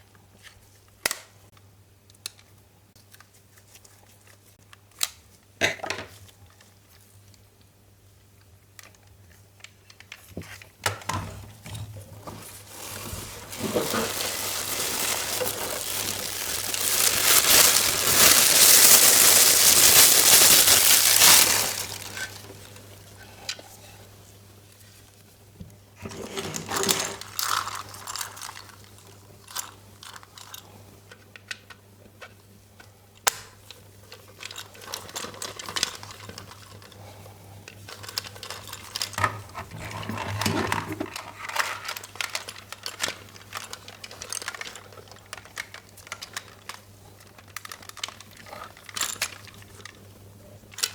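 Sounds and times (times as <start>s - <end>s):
packaging rustling: 12.2s - 23.1s, 26.8s - 30.2s, 37.9s - 50.0s.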